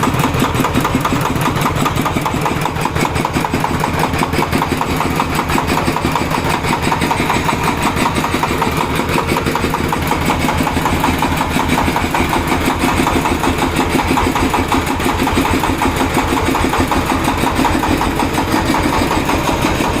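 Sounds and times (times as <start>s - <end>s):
engine-driven air compressor running: 0.0s - 20.0s.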